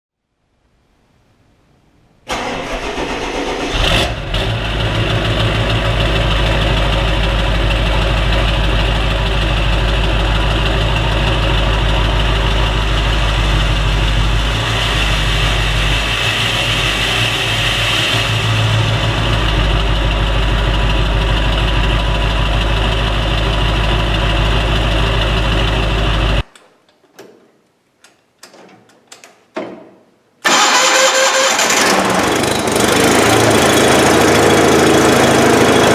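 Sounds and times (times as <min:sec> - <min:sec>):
engine running: 0:02.3 - 0:26.4, 0:30.5 - 0:35.9
loud hissing machine noise: 0:08.8 - 0:21.6.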